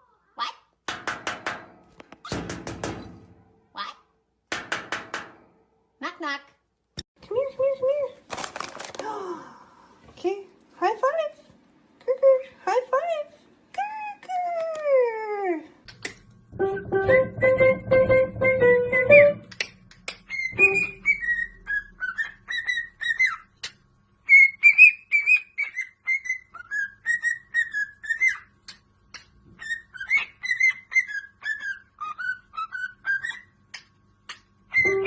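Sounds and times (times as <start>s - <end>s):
plucked-string music: 16.6s - 19.6s, 20.6s - 21.0s
parrot whistling a tune: 20.3s - 23.5s, 24.2s - 28.5s, 29.6s - 33.5s, 34.7s - 35.0s.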